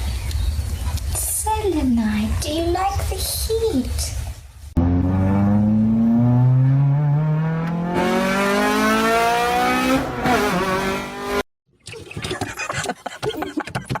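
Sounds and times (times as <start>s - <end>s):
engine revving: 4.8s - 11.5s.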